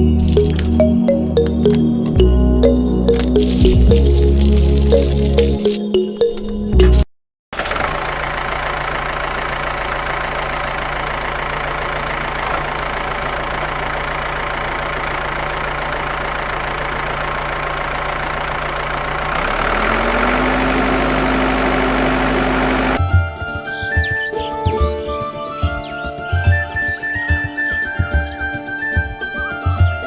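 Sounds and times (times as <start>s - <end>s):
motor humming: 7.6s - 23.0s.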